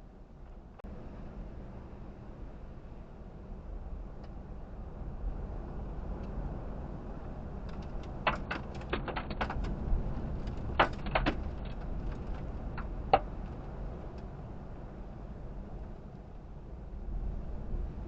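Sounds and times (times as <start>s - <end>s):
low vehicle rumble from inside: 0.0s - 18.0s
sharp taps and clicks: 7.8s - 9.7s, 10.7s - 11.8s.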